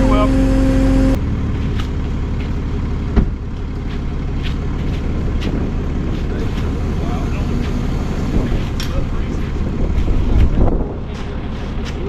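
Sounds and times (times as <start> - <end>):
vehicle engine rumbling: 0.0 - 12.0
sharp thump: 3.1 - 3.4.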